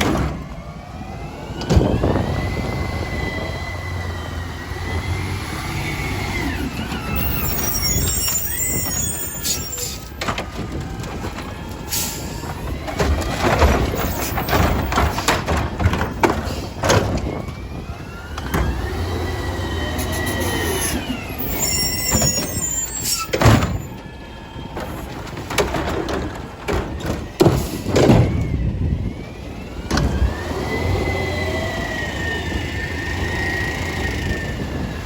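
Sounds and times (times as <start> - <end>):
hydraulic whine: 0.0 - 10.8, 11.4 - 24.8.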